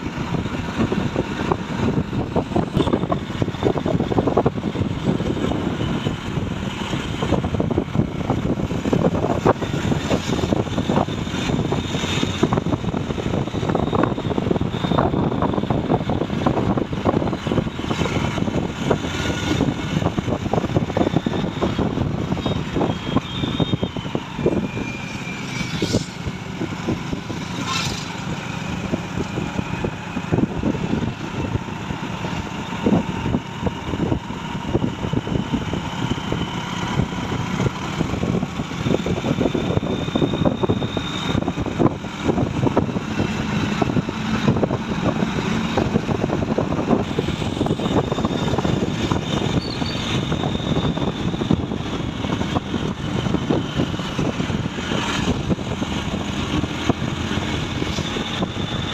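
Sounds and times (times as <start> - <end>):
truck engine running: 0.0 - 58.9.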